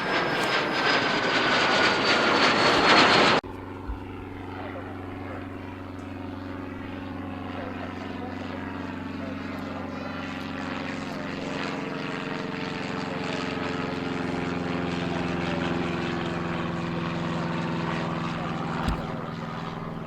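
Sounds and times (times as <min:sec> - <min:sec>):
propeller aircraft engines droning: 0:00.0 - 0:20.0
short knock: 0:18.8 - 0:19.2.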